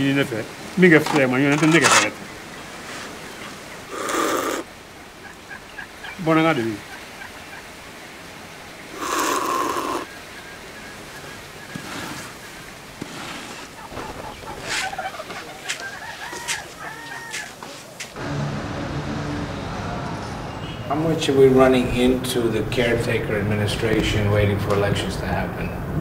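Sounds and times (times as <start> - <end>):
harsh bird call: 1.9 - 7.7, 8.8 - 17.6
short rising and falling bird calls: 2.2 - 18.0.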